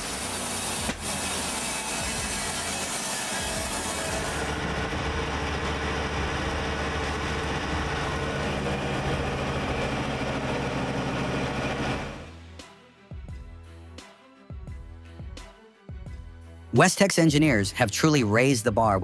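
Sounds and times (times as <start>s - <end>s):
heavy machine engine humming: 3.5s - 12.3s.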